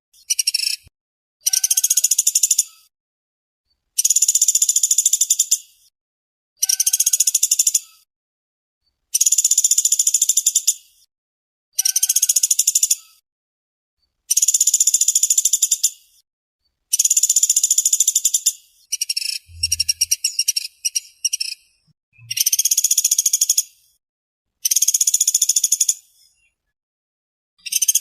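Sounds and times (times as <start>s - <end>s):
woodpecker rattling trills: 18.9s - 21.5s.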